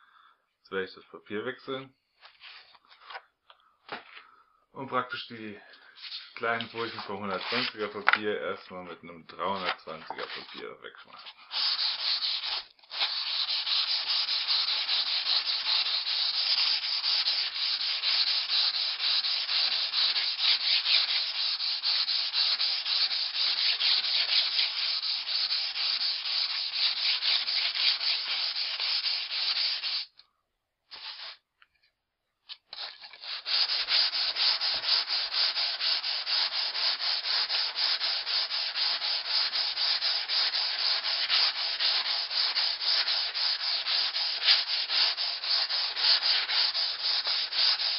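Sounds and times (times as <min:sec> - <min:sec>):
axe blade scraping on sandpaper: 0:06.0 - 0:07.9, 0:09.6 - 0:30.1, 0:32.6 - 0:47.9.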